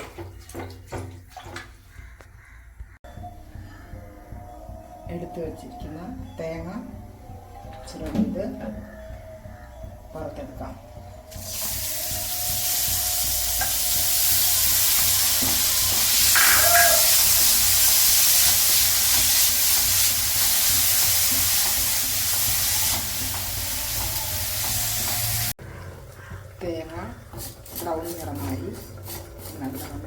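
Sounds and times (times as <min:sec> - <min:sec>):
spices sizzling in a pan: 0:11.3 - 0:25.6.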